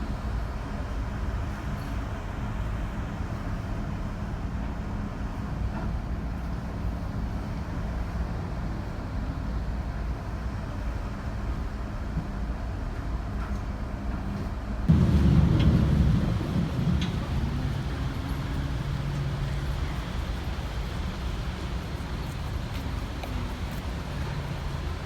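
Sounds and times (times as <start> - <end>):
low engine rumble: 14.8 - 25.0
faint hum: 14.9 - 23.6.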